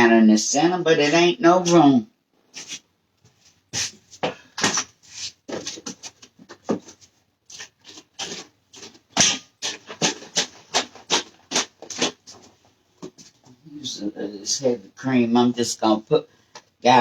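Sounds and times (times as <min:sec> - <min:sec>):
scraping and rubbing strokes: 0:02.5 - 0:02.8, 0:03.4 - 0:12.6.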